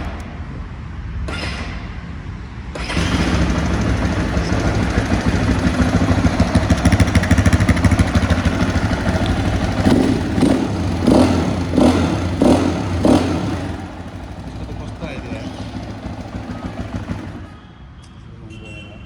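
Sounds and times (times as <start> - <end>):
motorcycle engine running: 2.8 - 17.7.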